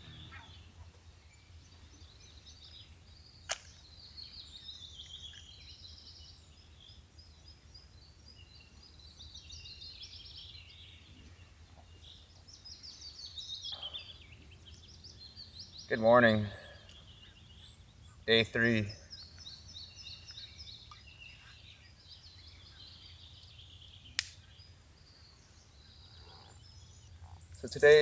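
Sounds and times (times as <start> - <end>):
birds chirping and warbling: 0.0 - 28.0
sharp click: 3.5 - 3.8, 24.2 - 24.4.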